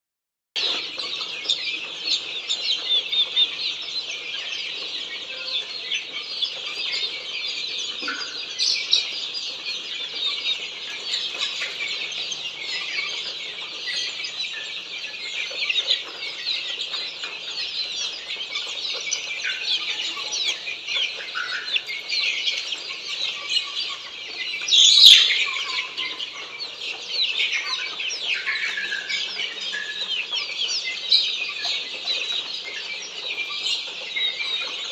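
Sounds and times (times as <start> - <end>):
chicks peeping: 0.6 - 34.9
loud chick call: 0.6 - 34.9.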